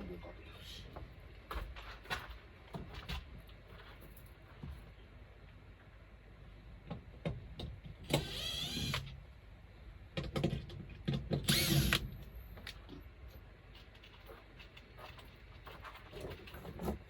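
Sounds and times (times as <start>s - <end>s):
power driver whine: 8.1s - 9.2s, 11.4s - 12.4s
handling knocks and clicks: 12.6s - 17.0s.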